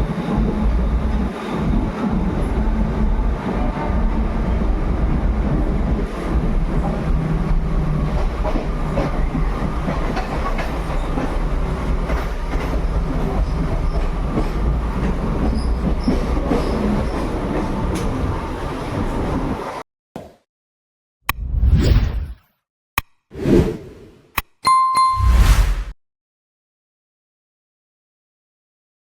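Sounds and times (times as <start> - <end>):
train wheels rumbling on rails: 0.0 - 19.8.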